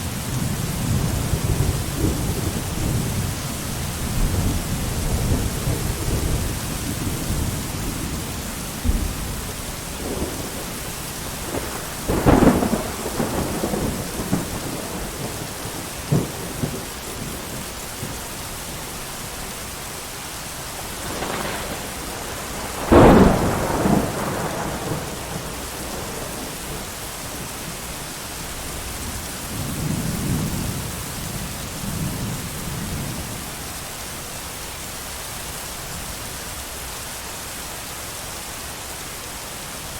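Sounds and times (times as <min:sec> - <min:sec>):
heavy rain: 0:00.0 - 0:39.9
thunder cracks and rumbles: 0:00.2 - 0:18.2, 0:20.8 - 0:27.8.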